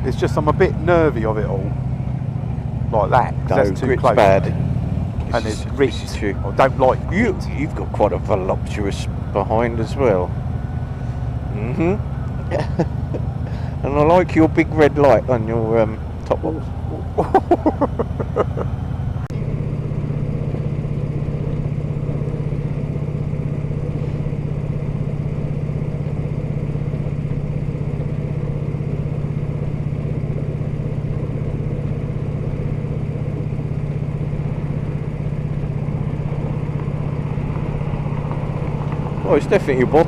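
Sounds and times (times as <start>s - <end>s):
motorcycle engine cruising: 0.0s - 40.0s.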